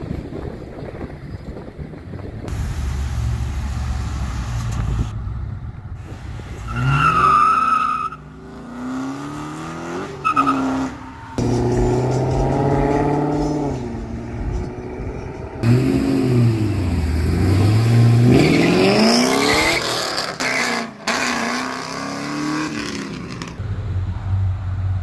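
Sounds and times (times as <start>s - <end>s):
wind on microphone: 0.0s - 3.0s
car engine accelerating: 8.3s - 20.4s.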